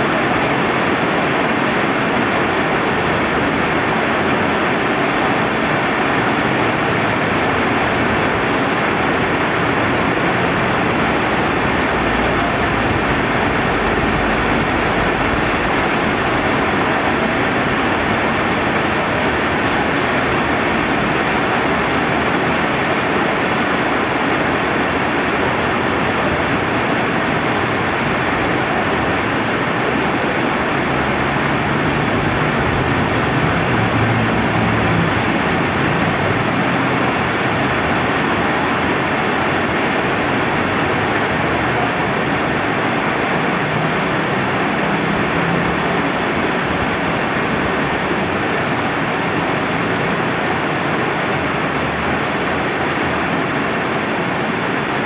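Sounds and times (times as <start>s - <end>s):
rain falling: 0.0s - 55.0s
river flowing: 0.0s - 55.0s.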